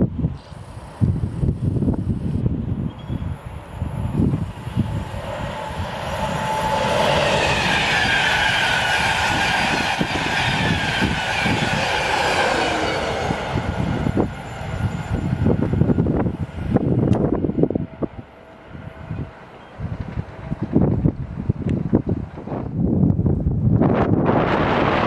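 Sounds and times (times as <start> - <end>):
train passing at speed: 0.0 - 25.0
wind buffeting microphone: 0.0 - 25.0
high falling whine: 3.4 - 17.3.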